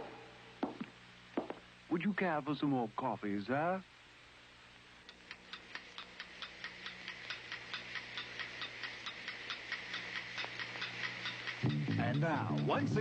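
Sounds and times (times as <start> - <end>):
rapid even ticking: 5.0 - 13.0.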